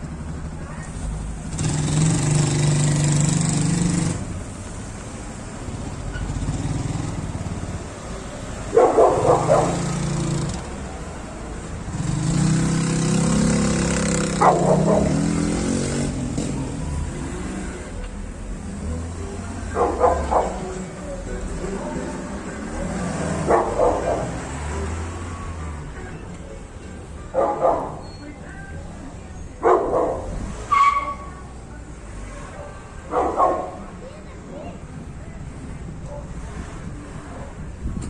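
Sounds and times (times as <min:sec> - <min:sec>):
vehicle engine revving: 0:00.0 - 0:26.1
dog barking: 0:08.6 - 0:10.0, 0:14.4 - 0:15.2, 0:19.7 - 0:20.8, 0:23.4 - 0:24.5, 0:27.3 - 0:28.0, 0:29.6 - 0:31.2, 0:32.4 - 0:33.9, 0:36.0 - 0:36.4.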